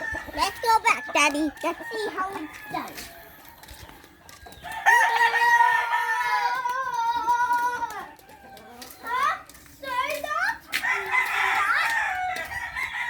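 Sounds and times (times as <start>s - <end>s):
rooster crowing: 4.7s - 6.7s.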